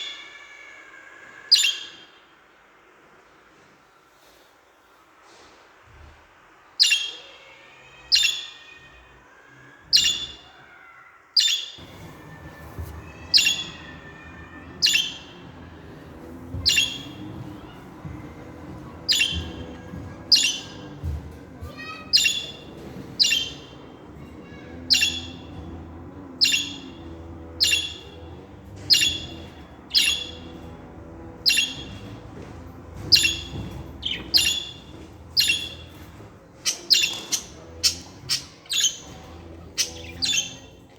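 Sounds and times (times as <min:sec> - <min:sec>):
budgerigar squawking: 0:13.3 - 0:15.4, 0:19.1 - 0:19.7, 0:26.4 - 0:27.0, 0:27.6 - 0:28.2, 0:28.8 - 0:30.5.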